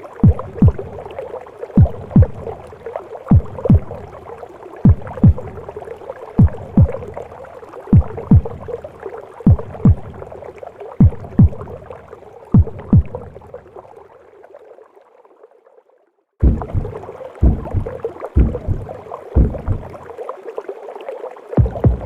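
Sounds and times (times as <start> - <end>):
heartbeat thumps: 0.2 - 1.0, 1.8 - 2.6, 3.3 - 4.1, 4.8 - 5.7, 6.4 - 7.2, 7.9 - 8.8, 9.4 - 10.3, 11.0 - 11.8, 12.5 - 13.4, 16.4 - 20.0, 21.6 - 22.0
whooshing womb hum: 16.4 - 19.9.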